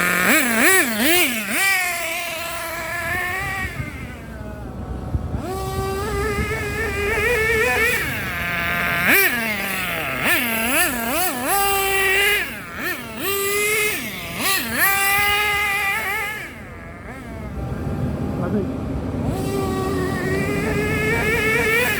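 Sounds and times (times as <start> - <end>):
small nitro engine revving: 0.0 - 21.9.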